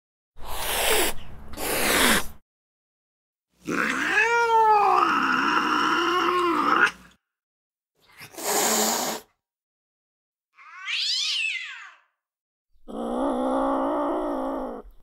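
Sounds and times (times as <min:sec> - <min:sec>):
recorded cat yowls: 0:03.6 - 0:07.1, 0:10.6 - 0:12.2, 0:12.9 - 0:15.0.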